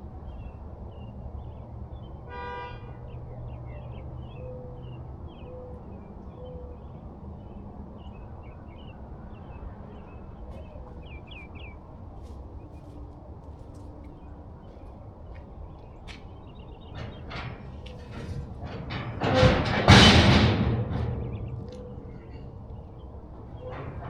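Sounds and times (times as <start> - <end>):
birds chirping: 0.3 - 13.2, 13.8 - 19.8, 20.8 - 24.0
low rumble: 16.9 - 24.0.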